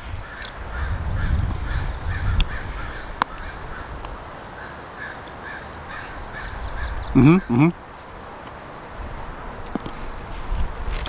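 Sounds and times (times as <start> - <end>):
low rumble: 0.6 - 3.2.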